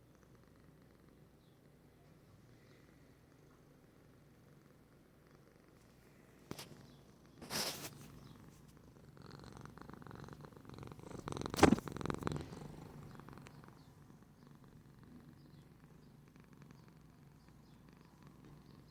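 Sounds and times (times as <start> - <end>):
cat purring: 0.0 - 18.9
short rustle: 7.4 - 8.8.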